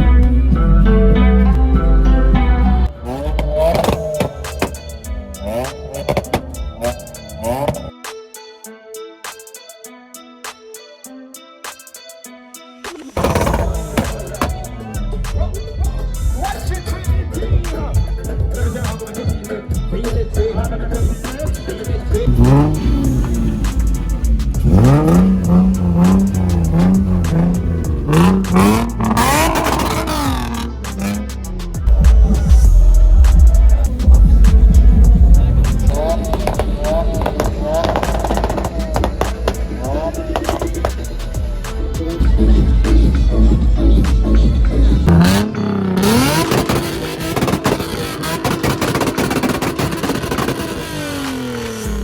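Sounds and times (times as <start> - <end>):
car engine revving hard: 3.0 - 7.9, 13.2 - 14.6, 21.2 - 31.4, 33.3 - 41.4, 44.8 - 52.0.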